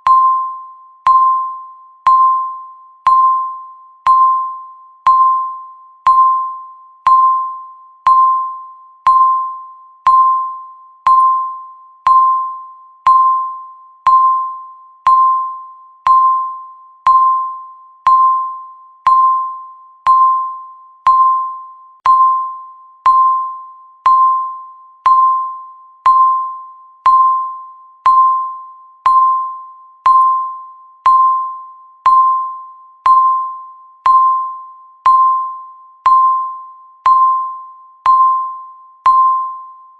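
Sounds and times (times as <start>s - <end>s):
timer ticking with bell-like pings: 0.0s - 39.9s.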